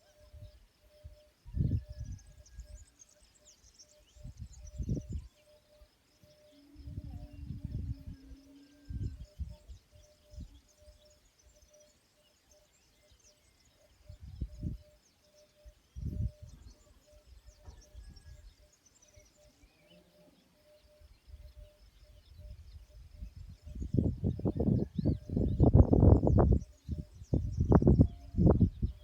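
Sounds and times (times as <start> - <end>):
small birds chirping: 0.0 - 29.0
faint pulsing note: 6.2 - 11.0.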